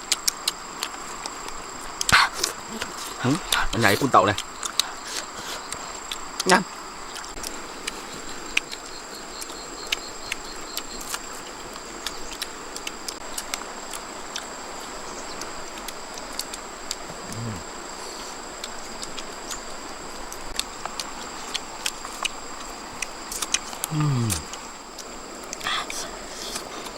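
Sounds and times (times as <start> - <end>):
small clicks and ticks: 0.0 - 2.6, 4.3 - 14.5, 15.3 - 17.0
crickets chirping: 0.0 - 26.9.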